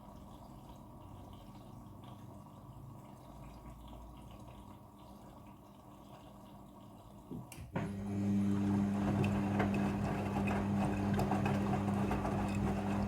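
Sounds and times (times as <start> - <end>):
water trickling and dripping: 0.0 - 7.7.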